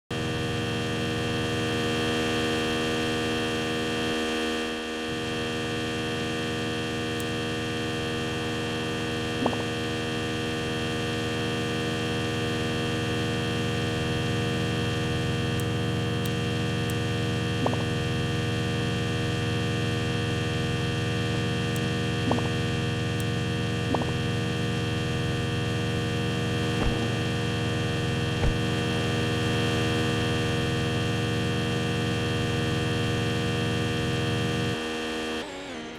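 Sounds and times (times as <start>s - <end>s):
electrical hum: 5.6s - 35.4s.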